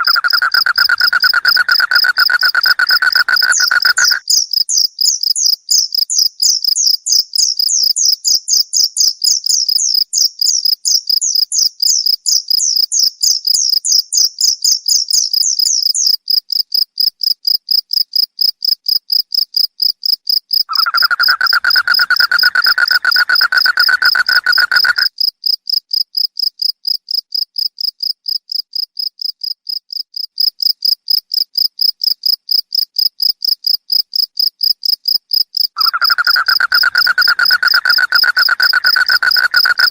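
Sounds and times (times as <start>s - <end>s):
higher chirping: 0.0s - 4.2s, 20.7s - 25.1s, 35.8s - 39.9s
crickets chirping: 0.0s - 39.9s
low buzzing insect call: 20.7s - 25.1s, 35.8s - 39.9s.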